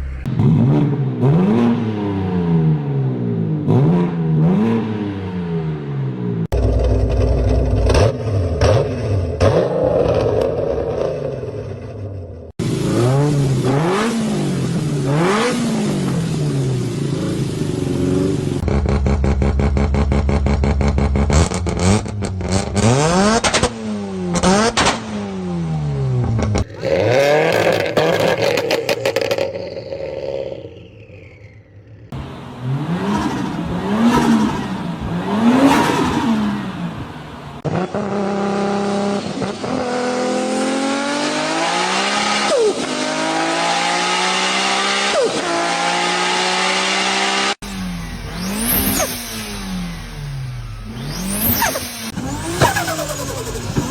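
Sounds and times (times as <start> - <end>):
racing engines revving: 32.1 - 53.9.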